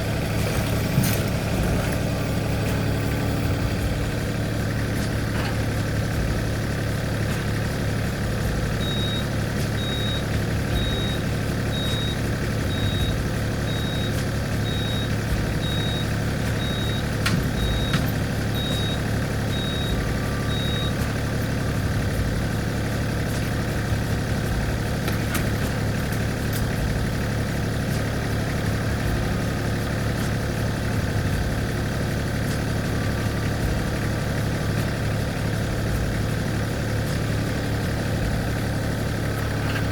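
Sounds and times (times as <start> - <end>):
tractor engine running: 0.0 - 39.9
faint high beep: 8.8 - 11.2, 18.6 - 21.0.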